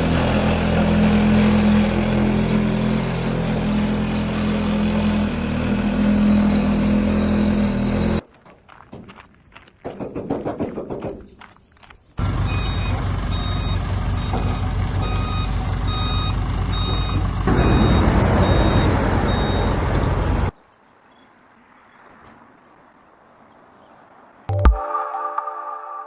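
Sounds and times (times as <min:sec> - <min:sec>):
concrete mixer engine running: 0:00.0 - 0:08.2
reversing alarm beeping: 0:12.4 - 0:20.0.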